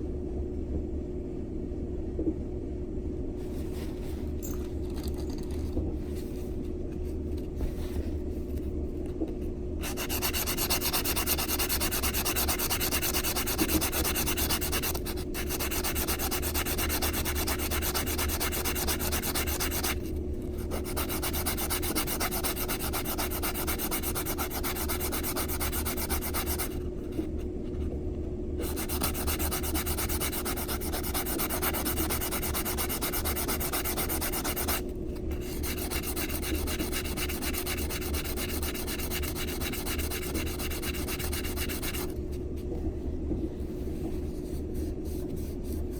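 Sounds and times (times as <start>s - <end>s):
steady low hum: 0.0s - 45.9s
metal ring sanded on nail file: 9.8s - 27.3s, 28.6s - 42.2s.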